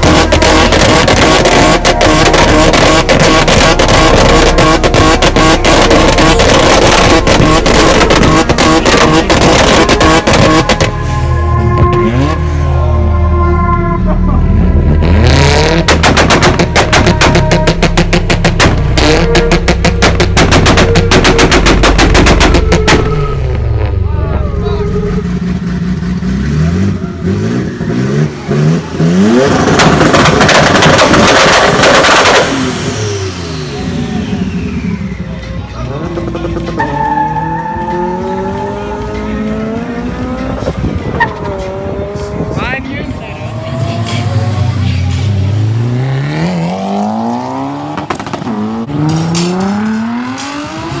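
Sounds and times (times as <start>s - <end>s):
exhaust pops and bangs: 0.0s - 11.0s, 15.3s - 24.0s, 29.4s - 33.4s, 47.8s - 51.0s
car engine revving: 0.0s - 51.0s.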